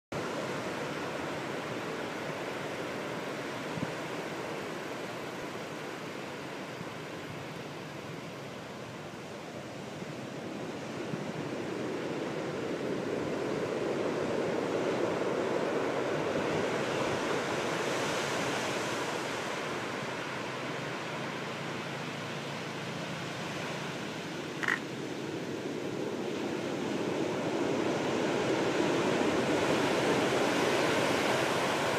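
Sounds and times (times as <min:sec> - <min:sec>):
rough surf breaking on shore: 0:00.2 - 0:31.9.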